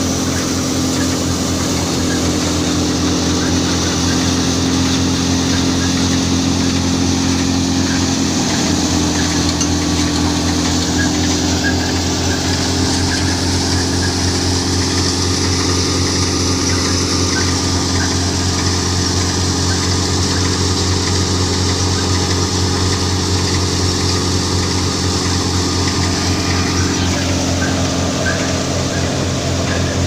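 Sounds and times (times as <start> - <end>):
thresher machine running: 0.0 - 30.0.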